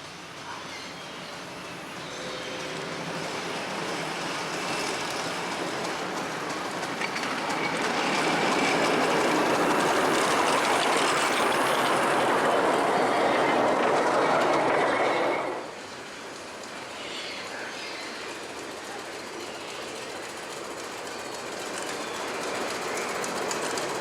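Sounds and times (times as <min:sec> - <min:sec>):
miniature train running on track: 0:00.0 - 0:24.0.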